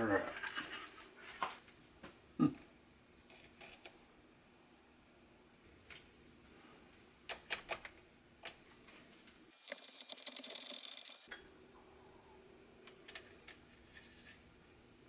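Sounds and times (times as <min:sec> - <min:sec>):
fast even clicking: 0:09.6 - 0:11.2.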